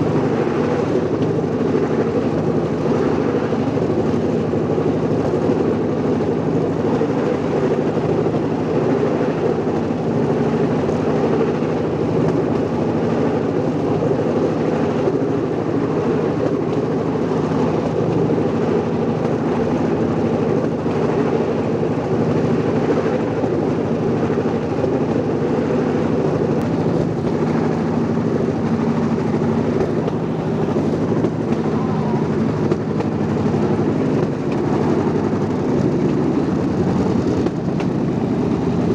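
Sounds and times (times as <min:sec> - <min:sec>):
small vehicle engine droning: 0:00.0 - 0:38.9.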